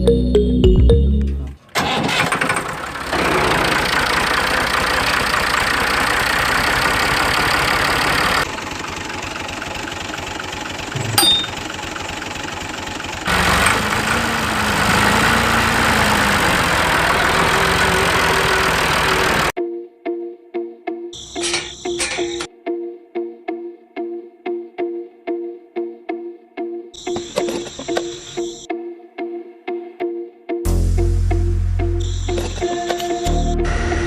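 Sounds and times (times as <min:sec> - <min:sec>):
motor running: 0:12.8 - 0:19.5.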